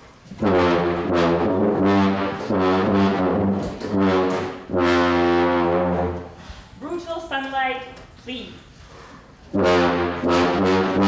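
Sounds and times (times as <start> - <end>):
brass instruments playing: 0.2 - 6.5, 9.4 - 11.0.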